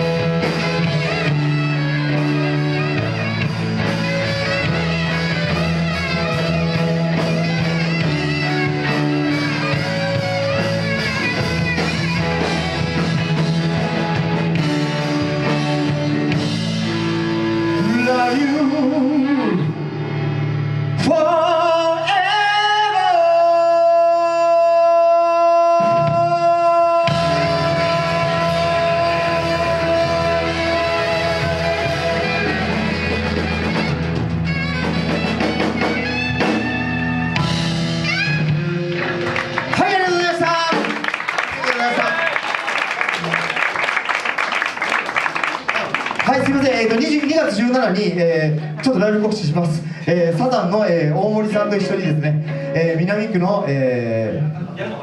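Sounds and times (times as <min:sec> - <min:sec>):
live rock band playing: 0:00.0 - 0:54.8
person singing: 0:17.6 - 0:20.0, 0:21.0 - 0:33.7.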